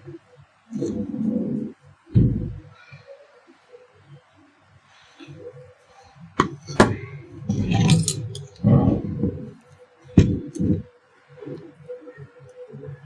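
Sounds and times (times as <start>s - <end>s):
metal parts rattling and scraping: 6.7s - 8.6s.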